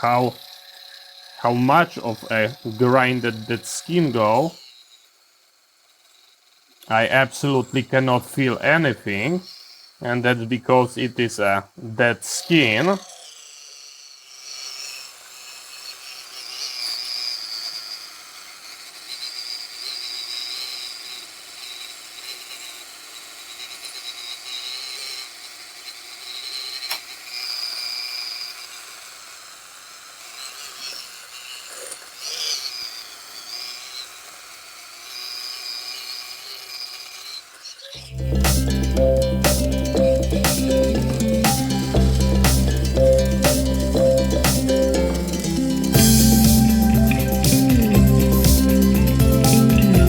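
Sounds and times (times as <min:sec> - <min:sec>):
electric foot file whining: 0:00.0 - 0:05.2, 0:12.4 - 0:50.0
music: 0:01.4 - 0:03.6, 0:06.9 - 0:07.1, 0:38.0 - 0:50.0.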